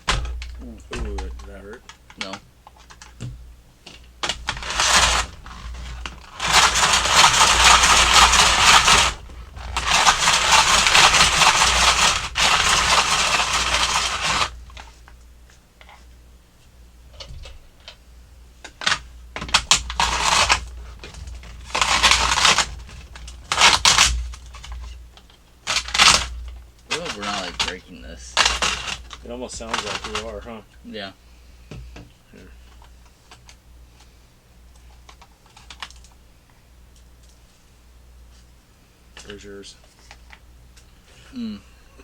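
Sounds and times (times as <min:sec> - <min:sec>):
ice shaver grinding ice: 0:04.2 - 0:14.6, 0:19.5 - 0:24.7, 0:25.7 - 0:30.4.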